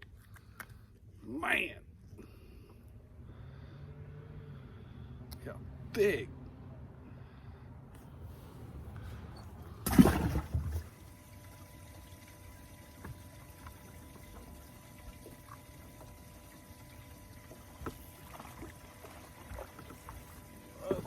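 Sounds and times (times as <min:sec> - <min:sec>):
faint water movement: 0:07.2 - 0:21.0
water splash: 0:09.8 - 0:11.6.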